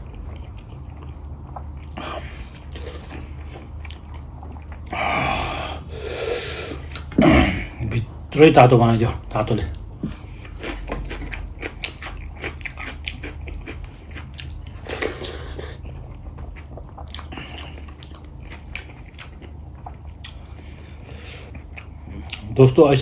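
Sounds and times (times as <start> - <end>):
person chewing crunchy food: 9.7 - 22.5.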